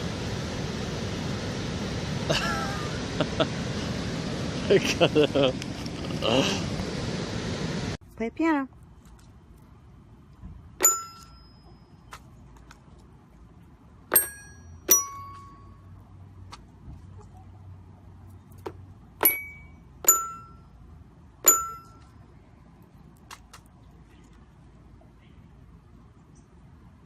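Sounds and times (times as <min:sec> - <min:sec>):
toy piano notes: 0:19.2 - 0:20.6, 0:21.5 - 0:22.0.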